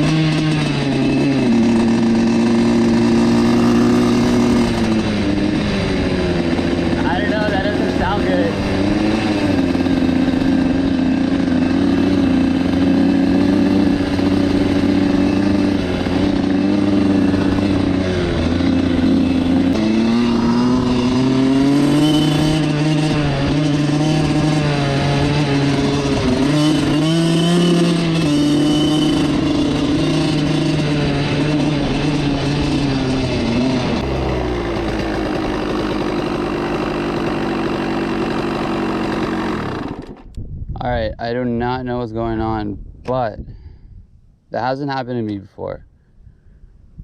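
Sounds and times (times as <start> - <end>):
two-stroke engine running: 0.0 - 40.4.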